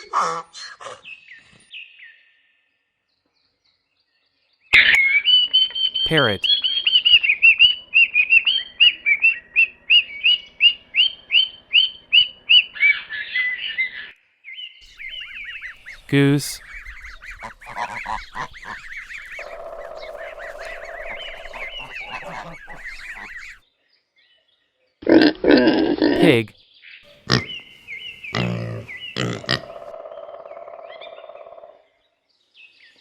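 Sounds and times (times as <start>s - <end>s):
geese honking: 15.0s - 23.6s
parrot squawking: 15.0s - 23.6s.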